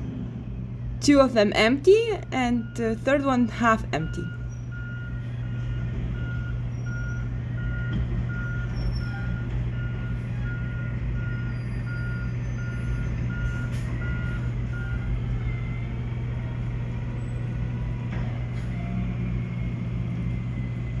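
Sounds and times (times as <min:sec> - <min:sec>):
diesel engine running: 0:00.0 - 0:21.0
reversing alarm beeping: 0:01.0 - 0:16.6.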